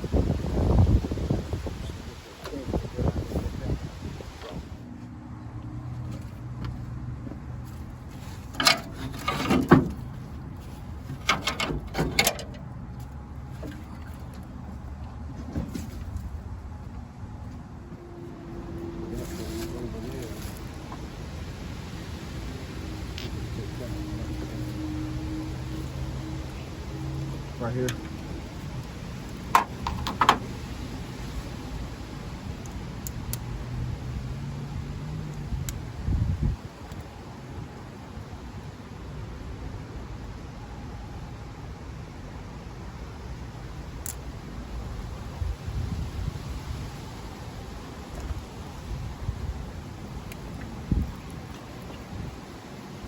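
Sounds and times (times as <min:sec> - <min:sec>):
tools and metal parts clanking: 0:08.4 - 0:10.2, 0:11.0 - 0:12.6.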